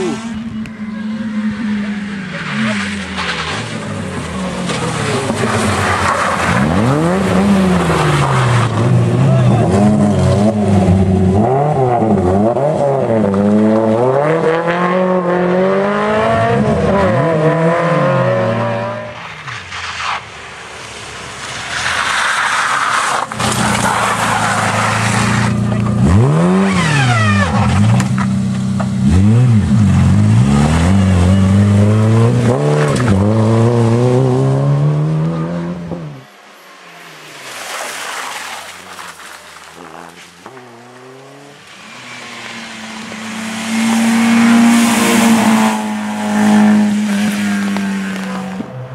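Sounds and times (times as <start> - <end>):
rally car engines revving: 0.0 - 48.9
hissy tyre or gravel noise: 1.9 - 11.3, 19.0 - 31.6, 36.2 - 48.9.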